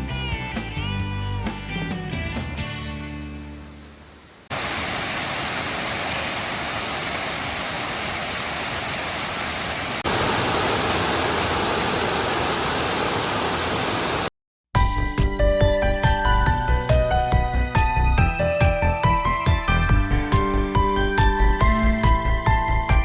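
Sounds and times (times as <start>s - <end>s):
waterfall rushing: 4.5s - 14.3s.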